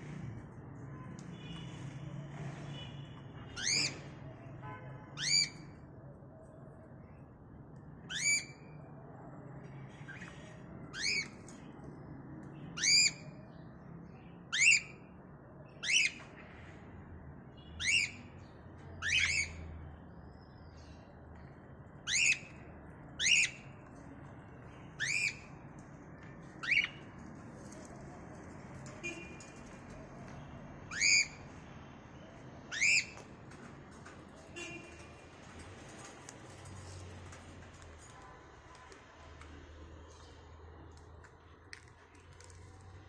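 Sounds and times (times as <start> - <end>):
cockatiel squawking calls: 30.9 - 31.4, 32.7 - 33.2.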